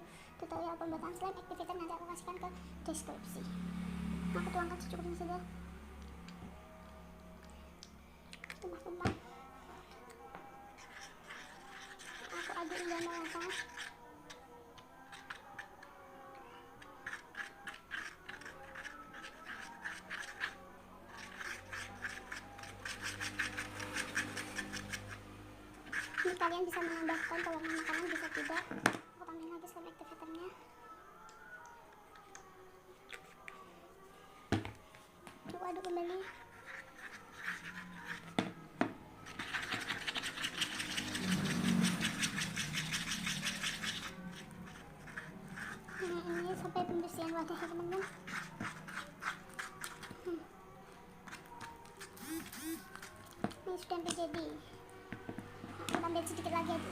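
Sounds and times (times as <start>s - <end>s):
sticky clicks and scrapes of stirring: 10.8s - 14.4s, 15.1s - 28.8s, 35.7s - 38.4s, 39.2s - 50.4s.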